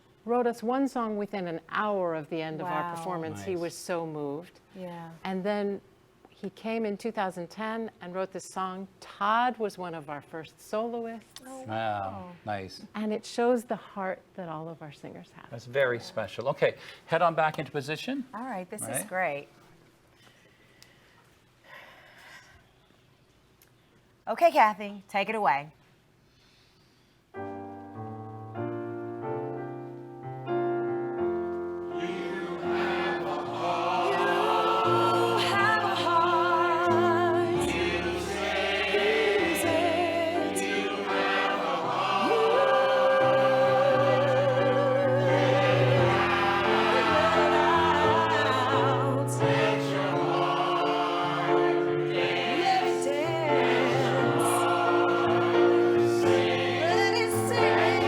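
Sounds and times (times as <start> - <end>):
choir singing with accompaniment: 31.7 - 58.0.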